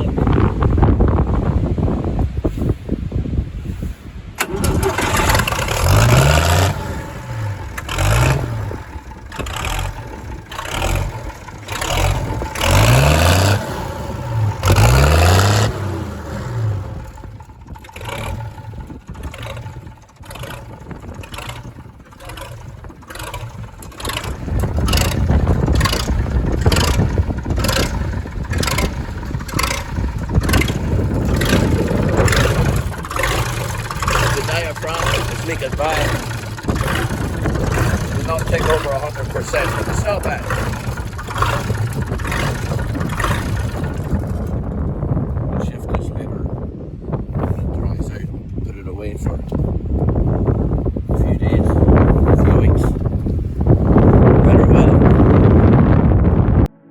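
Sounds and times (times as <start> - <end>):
tractor engine revving: 4.4 - 46.4.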